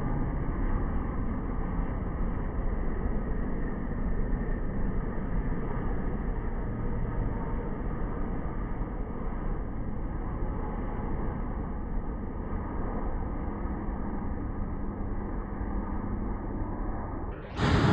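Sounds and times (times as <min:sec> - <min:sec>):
faint steady hum: 0:00.0 - 0:17.9
jet engines rumbling: 0:17.3 - 0:17.9.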